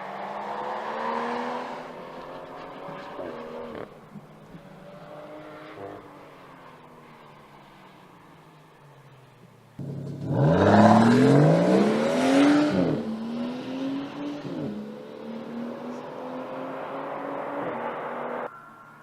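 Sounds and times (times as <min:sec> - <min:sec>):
car engine accelerating hard: 0:09.8 - 0:18.5.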